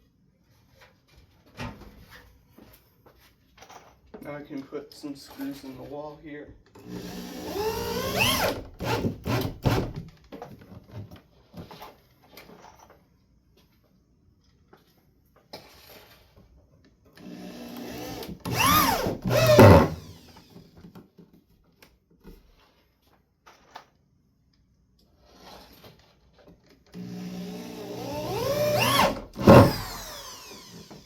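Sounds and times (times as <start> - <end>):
drill clicks: 6.8 - 10.0, 17.2 - 20.7, 26.9 - 31.0
power drill driving screws: 6.8 - 10.0, 17.2 - 20.8, 26.9 - 31.0.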